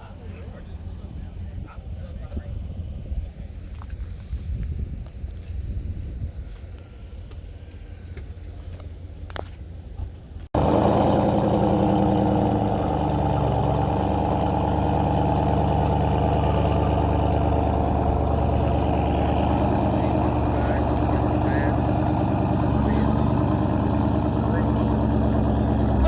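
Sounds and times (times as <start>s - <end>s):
car engine idling: 10.6s - 26.0s.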